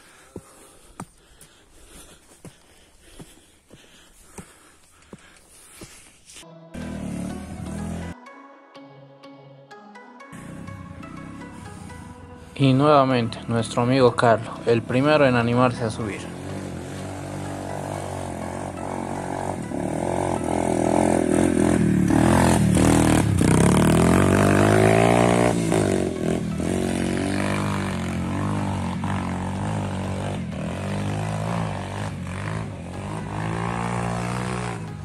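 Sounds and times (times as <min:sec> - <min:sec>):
motorcycle engine revving: 0:06.8 - 0:08.2, 0:13.4 - 0:35.0.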